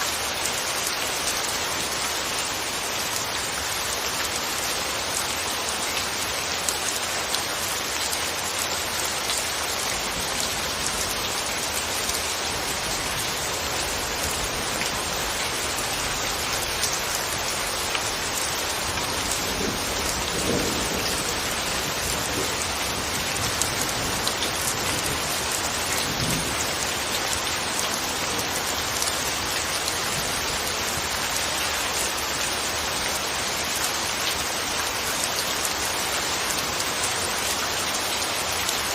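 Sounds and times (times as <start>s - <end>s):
gentle rain falling: 0.0s - 38.9s.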